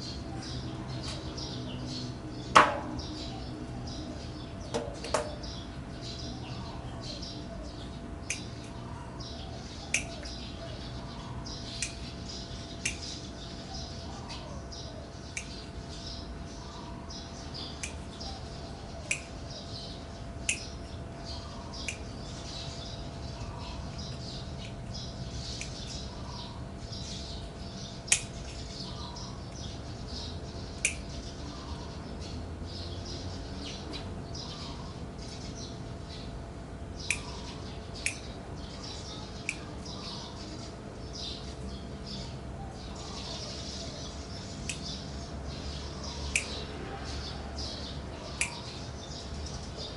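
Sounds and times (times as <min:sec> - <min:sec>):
small birds chirping: 0:00.0 - 0:49.9
sharp click: 0:08.2 - 0:08.5, 0:09.9 - 0:10.4, 0:17.8 - 0:18.0, 0:30.8 - 0:31.1, 0:37.0 - 0:37.3, 0:38.0 - 0:38.3, 0:46.3 - 0:46.6, 0:48.4 - 0:48.7.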